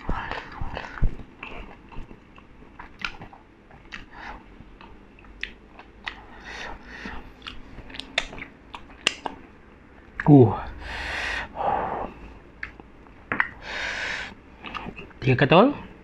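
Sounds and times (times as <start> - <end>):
wet chewing mouth sounds: 0.0 - 9.5, 14.6 - 15.2.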